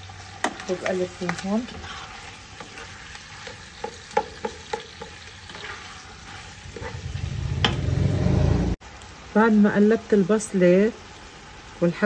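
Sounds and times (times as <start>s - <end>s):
chicken and onion sizzling in oil: 0.0s - 7.6s, 8.8s - 12.0s
spoon stirring: 0.3s - 7.0s
spoon knocking against pot: 3.8s - 5.2s.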